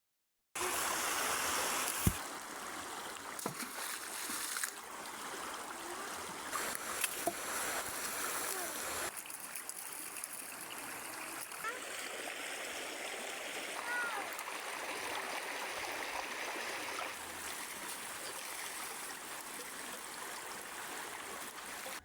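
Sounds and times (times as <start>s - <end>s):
hiss of falling water: 0.6s - 2.3s, 5.8s - 18.4s.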